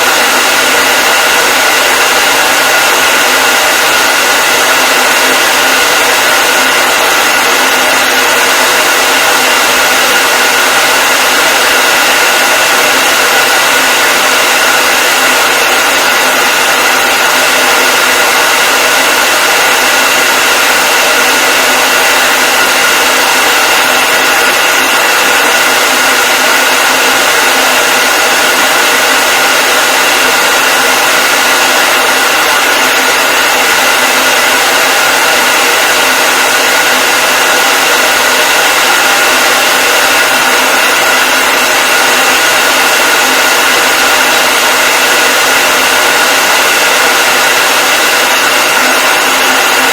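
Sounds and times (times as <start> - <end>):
hair dryer running: 0.0 - 49.9.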